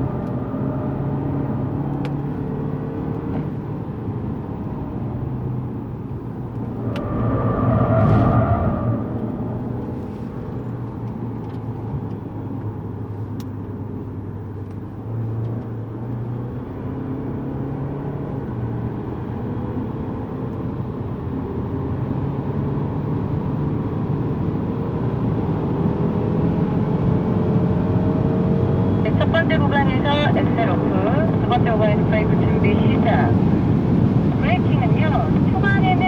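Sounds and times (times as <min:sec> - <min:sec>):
tyre and road noise: 0:00.0 - 0:18.5
car engine running: 0:28.9 - 0:36.0.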